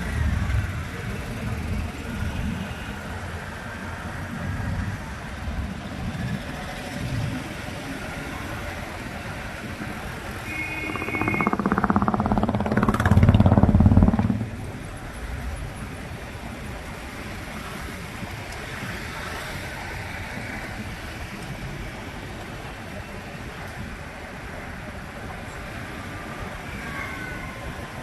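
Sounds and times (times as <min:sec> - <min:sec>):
street traffic: 0:00.0 - 0:28.0
vehicle engine passing close: 0:10.5 - 0:15.1.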